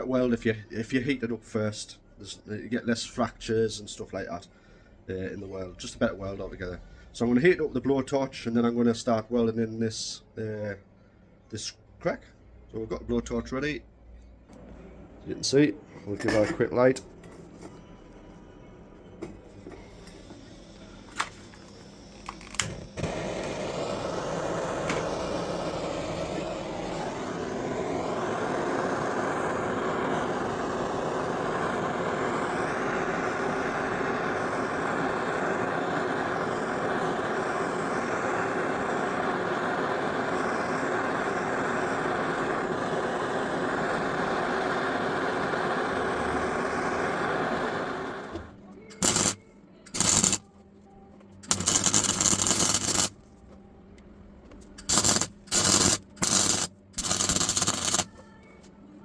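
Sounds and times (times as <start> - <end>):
blowtorch flame hissing: 19.4 - 50.4, 51.5 - 53.1, 54.8 - 58.1
blowtorch igniter clicks: 21.1 - 50.4.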